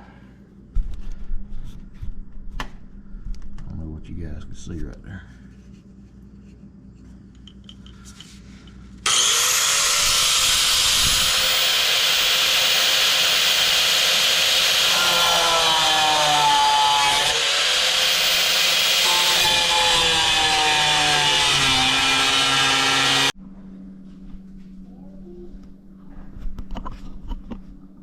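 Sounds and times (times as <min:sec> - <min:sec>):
angle grinder cutting steel: 0:09.0 - 0:23.4.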